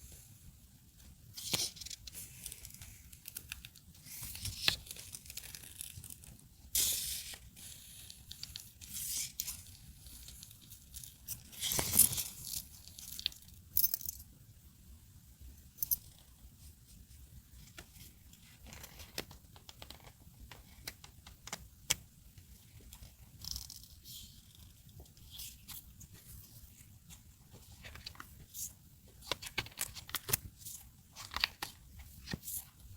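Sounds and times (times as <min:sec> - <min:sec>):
paper rustling: 0:25.3 - 0:32.9.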